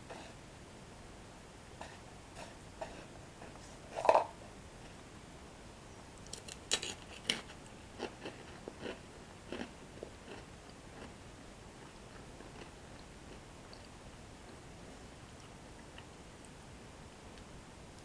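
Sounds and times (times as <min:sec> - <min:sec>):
crunchy bread sticks chewed: 0:06.2 - 0:16.6.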